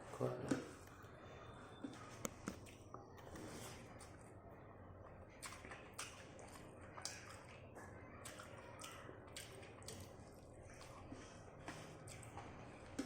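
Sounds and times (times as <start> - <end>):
chewing and wet mouth smacks: 1.9 - 3.3, 5.0 - 11.2, 12.0 - 13.0.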